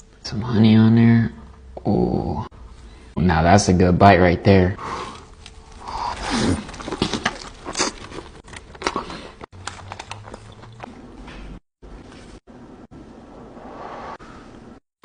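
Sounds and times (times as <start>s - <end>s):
wet chewing: 5.1s - 11.5s.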